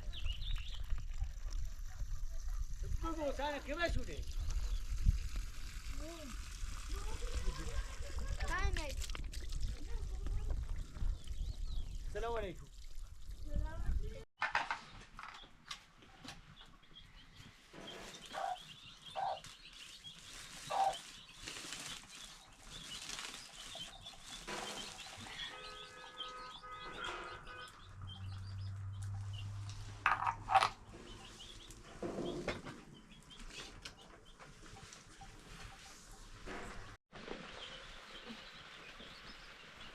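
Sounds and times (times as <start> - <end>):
farm animal calls: 17.8 - 19.5, 20.7 - 21.0.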